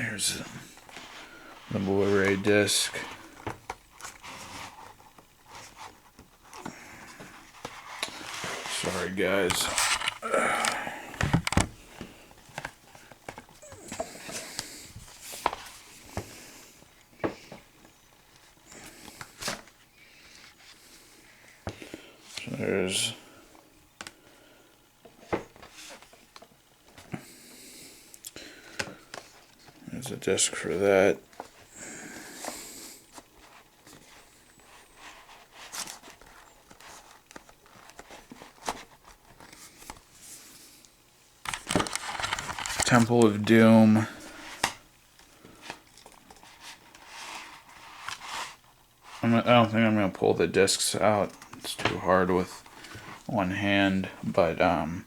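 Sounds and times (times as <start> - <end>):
paper rustling: 0.9 - 16.3, 41.4 - 43.6.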